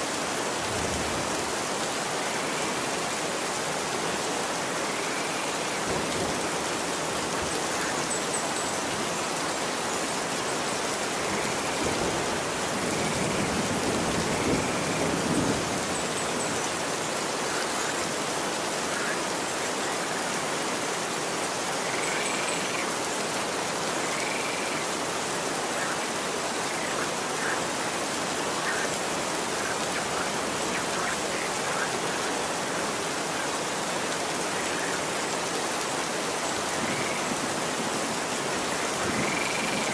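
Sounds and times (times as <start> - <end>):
rain falling on a street: 0.0 - 39.9.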